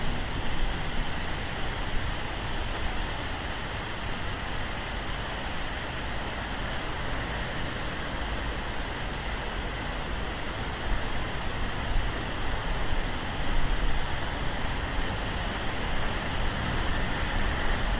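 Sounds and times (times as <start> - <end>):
rain on a street: 0.0 - 17.9
traffic on wet road: 0.0 - 17.9.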